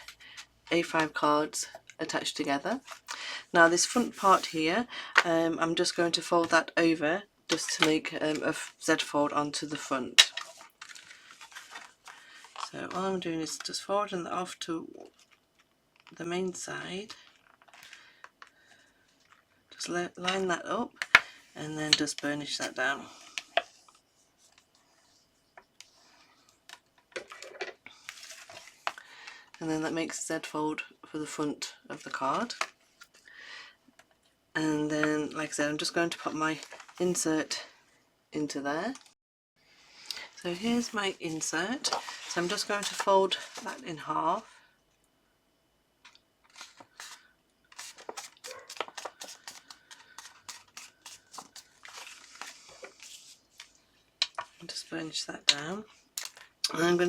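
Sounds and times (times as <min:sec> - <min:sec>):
dry rubbing and scraping of card: 0:03.8 - 0:04.6, 0:46.5 - 0:53.7
paper rustling: 0:03.8 - 0:04.7, 0:10.2 - 0:13.0, 0:40.7 - 0:43.9, 0:46.5 - 0:53.8.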